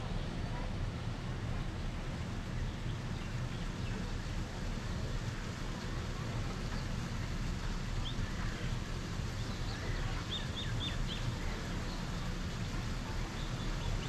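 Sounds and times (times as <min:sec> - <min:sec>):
low outdoor rumble: 0:00.0 - 0:14.0
small birds chirping: 0:09.4 - 0:12.3.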